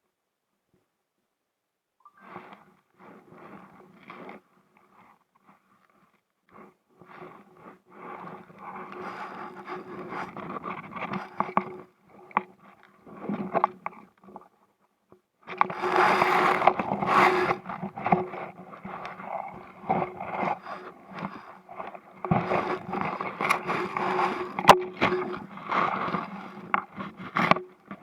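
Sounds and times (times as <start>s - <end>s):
scraping on inflatable kayak: 6.6s - 14.5s, 15.5s - 28.0s.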